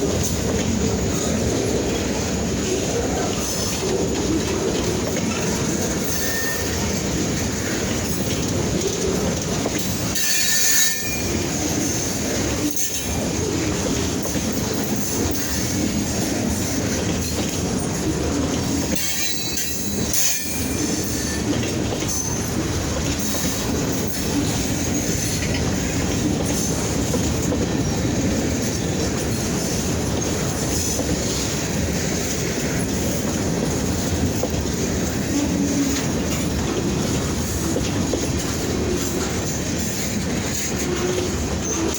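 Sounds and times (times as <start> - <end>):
train wheels clattering on rails: 0.0 - 41.9
high wheel squeals: 6.0 - 7.0, 10.2 - 12.0.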